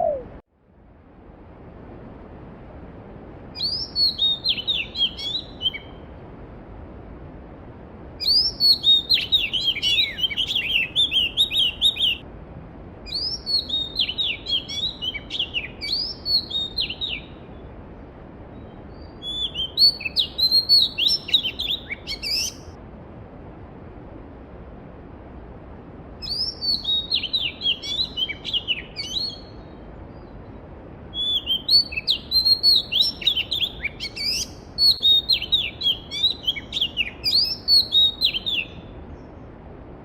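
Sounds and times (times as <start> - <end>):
songbird singing: 0.0 - 0.4, 3.5 - 6.1, 8.2 - 12.3, 13.0 - 17.8, 18.4 - 22.8, 26.2 - 39.5.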